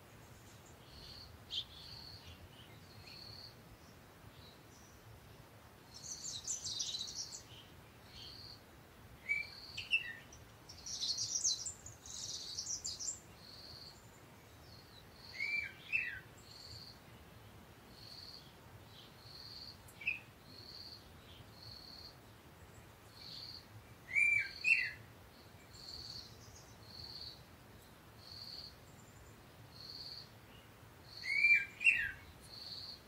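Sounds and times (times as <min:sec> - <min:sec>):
birds chirping: 0:05.9 - 0:08.6, 0:09.2 - 0:33.0
bird twittering: 0:24.1 - 0:25.0, 0:31.2 - 0:32.2.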